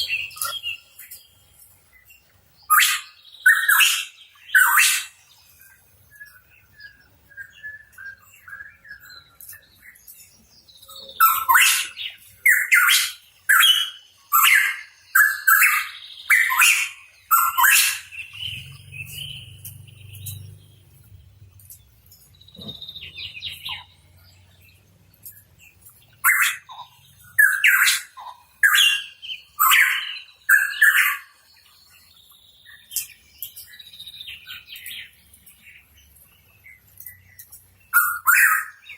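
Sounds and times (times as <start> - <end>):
quieter bird calls: 0.0 - 38.9.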